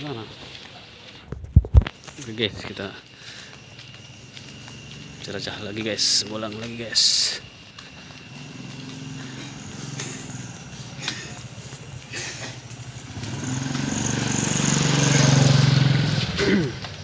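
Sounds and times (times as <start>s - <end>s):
vehicle engine passing by: 8.1s - 16.9s.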